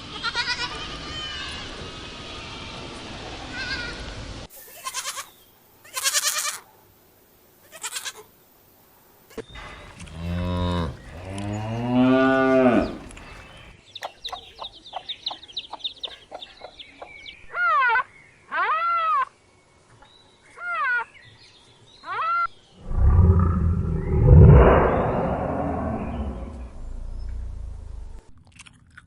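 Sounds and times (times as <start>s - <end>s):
short high bleats: 4.7s - 6.7s
chirps: 12.6s - 17.5s, 22.6s - 28.2s
long deep animal calls: 22.8s - 27.9s.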